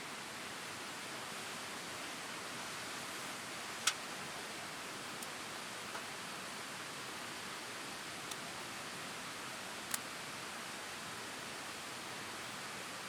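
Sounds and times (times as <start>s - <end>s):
campfire hissing: 0.5s - 13.0s
faint fire ticks: 3.8s - 4.1s.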